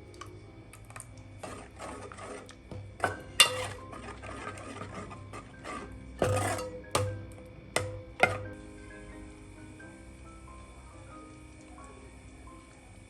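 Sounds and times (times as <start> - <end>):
soft background music: 0.0 - 13.0
kitchen utensils scraping and knocking: 1.4 - 8.6
utensils clattering: 1.6 - 8.6.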